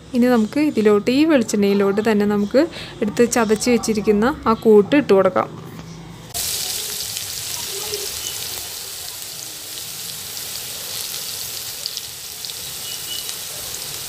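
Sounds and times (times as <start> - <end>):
paste sizzling in hot oil: 6.4 - 14.0.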